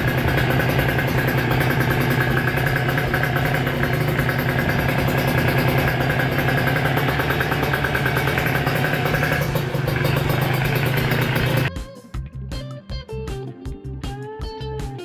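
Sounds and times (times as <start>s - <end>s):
two-stroke motorcycle engine running: 0.0s - 11.7s
guitar music: 0.0s - 15.0s.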